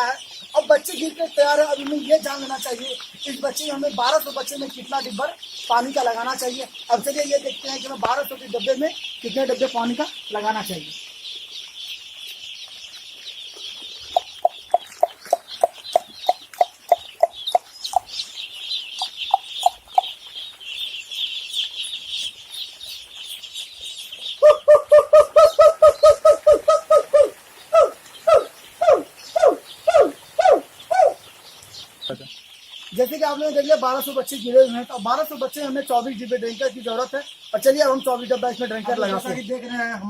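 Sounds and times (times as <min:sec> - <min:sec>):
chicks peeping: 0:00.0 - 0:40.0
low clucks: 0:14.1 - 0:18.1.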